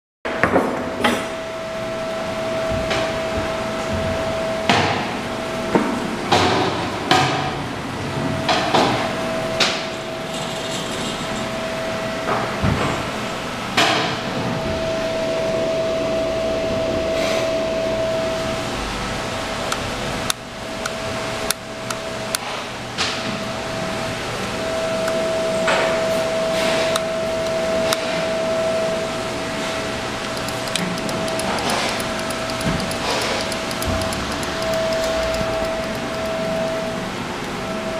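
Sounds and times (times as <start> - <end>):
high-pitched hum: 14.4 - 22.3, 23.3 - 37.9.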